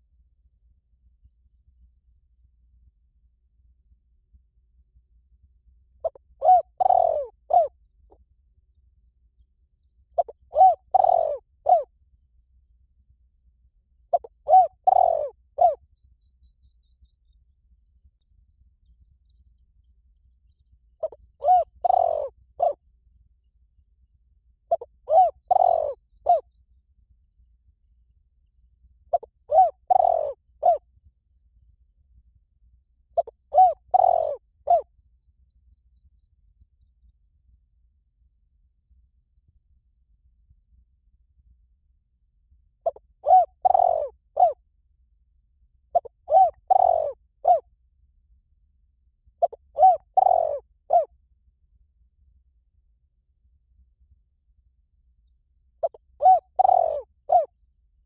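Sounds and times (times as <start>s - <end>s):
dove cooing: 6.0s - 7.7s, 10.2s - 11.9s, 14.1s - 15.8s, 21.0s - 22.8s, 24.7s - 26.4s, 29.1s - 30.8s, 33.2s - 34.8s, 42.8s - 44.6s, 46.0s - 47.6s, 49.4s - 51.1s, 55.8s - 57.5s.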